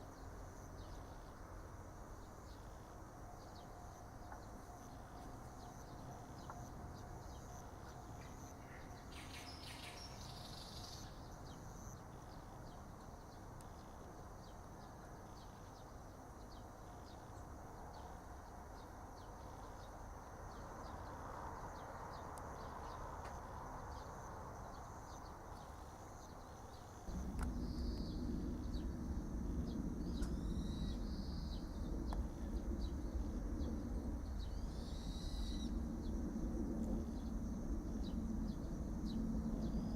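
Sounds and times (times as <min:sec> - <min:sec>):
high insect drone with ticks: 0:00.0 - 0:39.9
low rumble: 0:27.0 - 0:39.9.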